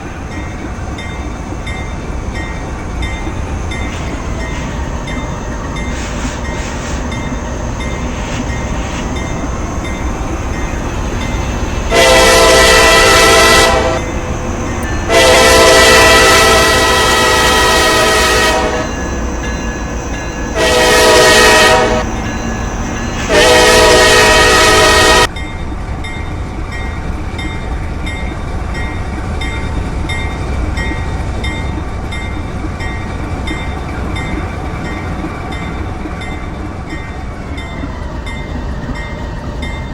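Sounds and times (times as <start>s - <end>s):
train rumble: 0.0s - 39.9s
locomotive horn: 11.9s - 19.1s, 20.6s - 22.2s, 23.1s - 25.3s.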